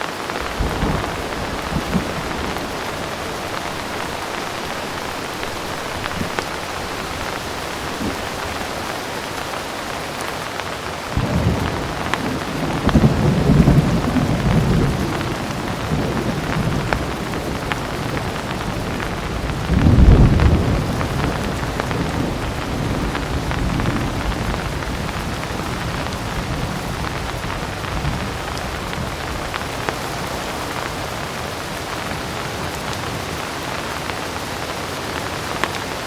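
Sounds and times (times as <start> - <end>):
heavy rain falling: 0.0 - 36.0
thunder rumbling: 0.0 - 36.0.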